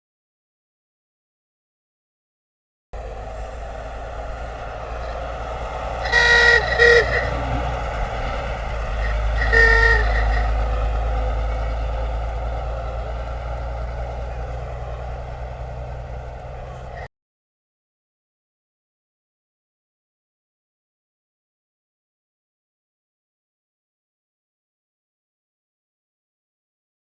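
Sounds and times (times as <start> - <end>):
vehicle rumble: 3.0 - 17.1
car horn honking: 5.8 - 11.3.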